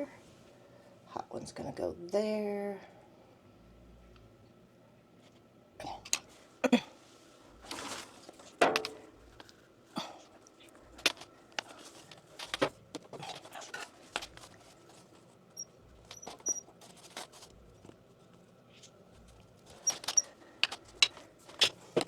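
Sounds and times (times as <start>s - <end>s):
hands handling pipe and tools: 7.6s - 9.7s, 10.4s - 22.0s
faint high squeaks: 15.6s - 16.7s, 19.7s - 20.4s.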